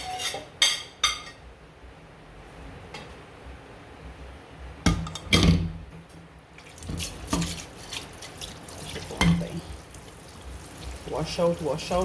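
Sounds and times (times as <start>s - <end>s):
pots and dishes clinking: 0.0s - 1.5s, 9.0s - 9.7s
water dripping: 6.6s - 12.0s.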